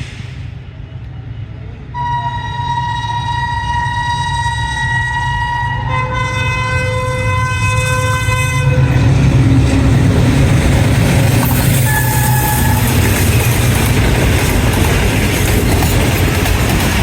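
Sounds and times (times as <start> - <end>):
train rumbling and rattling: 0.0 - 17.0
train horn chord: 2.0 - 9.6, 11.7 - 13.4.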